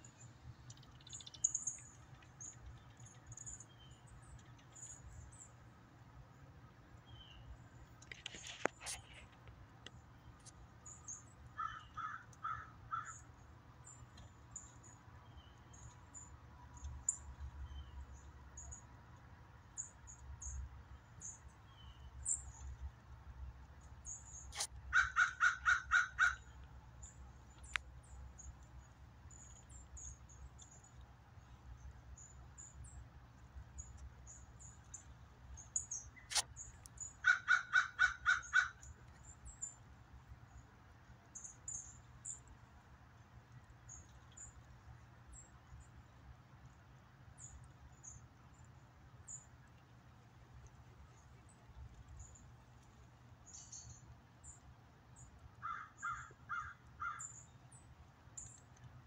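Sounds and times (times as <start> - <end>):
small birds chipping: 0.0 - 59.0
bird giving loud calls: 24.9 - 26.4, 37.2 - 38.8.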